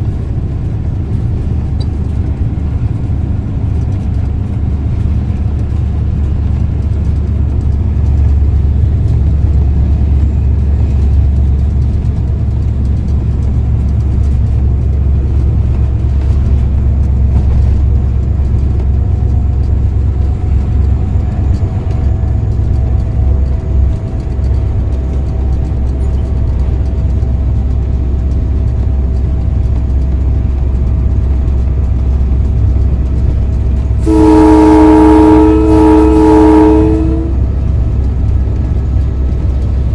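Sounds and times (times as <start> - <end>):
diesel locomotive engine rumble: 0.0 - 39.9
locomotive horn: 34.0 - 37.6.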